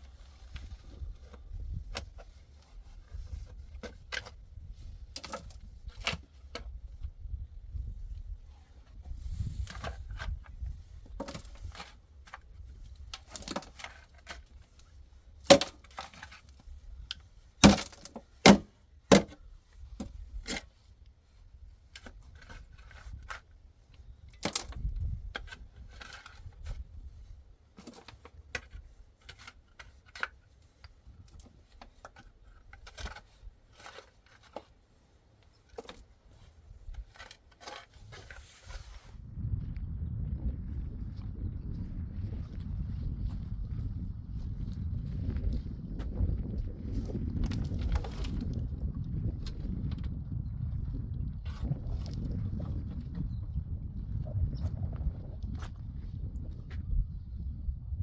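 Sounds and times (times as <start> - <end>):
faint low rumble: 38.8 - 58.0.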